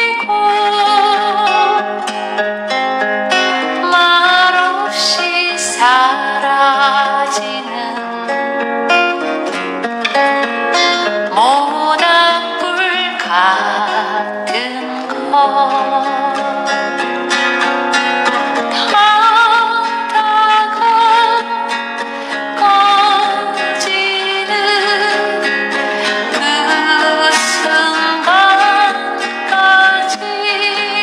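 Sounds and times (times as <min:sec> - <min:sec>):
acoustic guitar strumming: 0:00.0 - 0:31.0
sustained melody with vibrato: 0:20.8 - 0:31.0.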